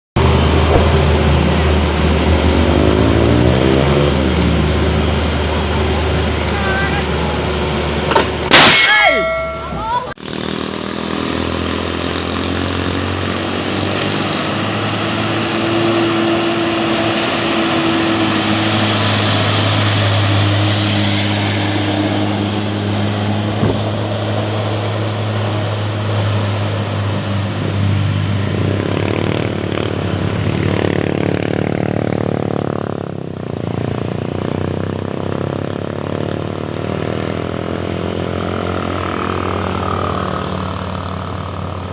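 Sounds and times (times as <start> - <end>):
truck diesel engine under load: 0.2 - 8.5, 9.4 - 41.9
loud gliding pitched tone: 8.4 - 10.8.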